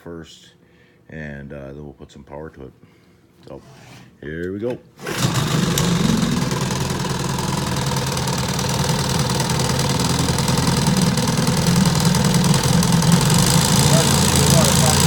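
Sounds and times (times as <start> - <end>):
outboard motor idling: 5.1 - 15.0.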